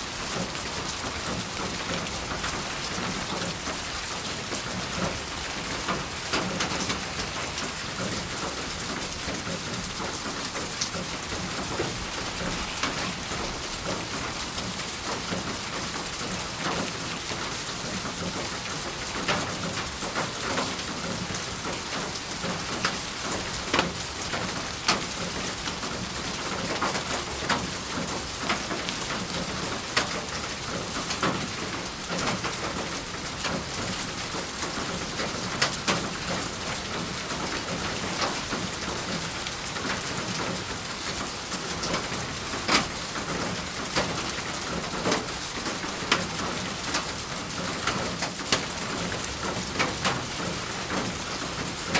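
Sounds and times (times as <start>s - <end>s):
rain hissing: 0.0s - 23.7s
raindrops ticking on hard surface: 0.1s - 51.9s.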